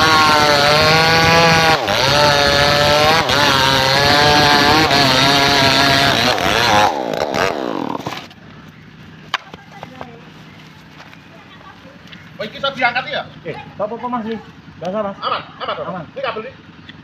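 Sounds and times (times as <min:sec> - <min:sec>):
engine-powered saw cutting timber: 0:00.0 - 0:11.1.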